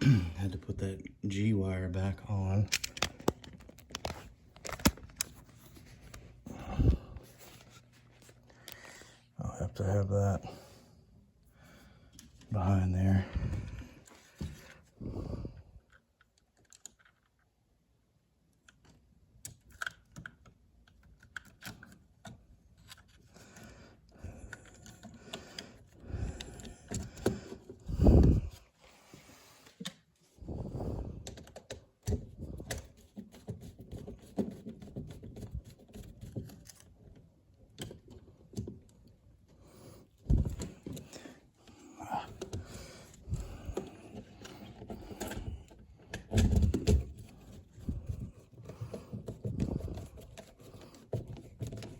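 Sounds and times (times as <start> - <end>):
hands clicking wires and terminals: 2.6 - 6.2, 18.5 - 23.2, 24.2 - 28.6, 31.2 - 39.1, 40.2 - 51.9.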